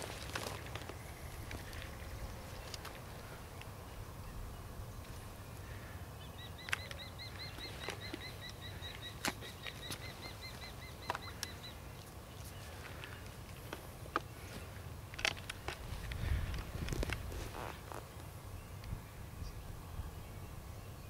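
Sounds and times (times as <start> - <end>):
bird chirping rapidly: 6.2 - 11.8.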